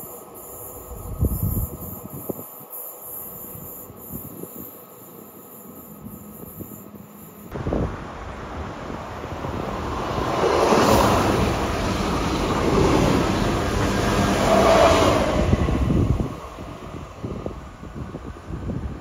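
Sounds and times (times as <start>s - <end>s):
wind buffeting microphone: 0.8s - 2.6s, 3.4s - 4.8s, 7.5s - 19.0s
train wheels rushing over rails: 8.6s - 19.0s.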